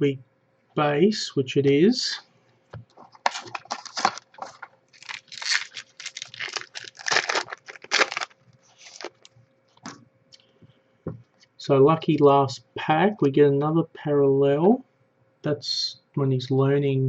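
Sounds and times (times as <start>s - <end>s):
cards and wrappers rustling: 2.9s - 9.4s.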